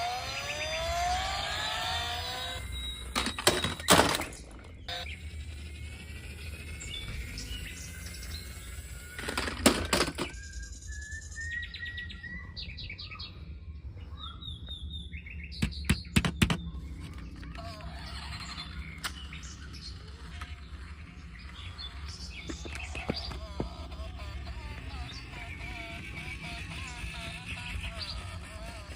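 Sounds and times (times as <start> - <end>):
small birds chirping: 0.0 - 28.9
sharp clicking knocks: 15.6 - 16.7.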